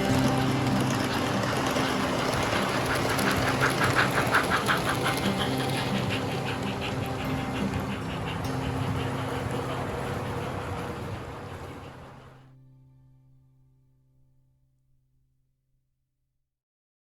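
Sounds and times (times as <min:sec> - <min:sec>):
model train running: 0:00.0 - 0:12.5
rhythmic pulsing: 0:00.0 - 0:12.5.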